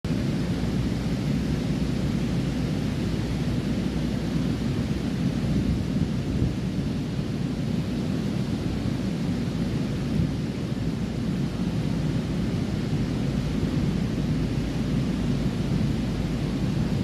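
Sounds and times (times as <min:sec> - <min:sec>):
ocean waves roaring: 0:00.1 - 0:17.0.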